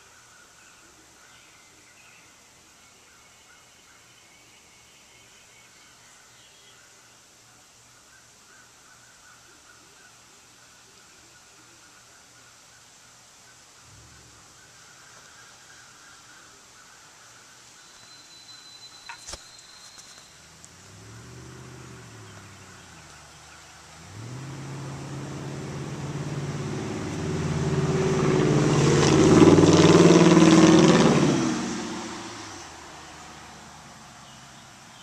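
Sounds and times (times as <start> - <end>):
car exhaust rumbling: 20.4 - 34.1.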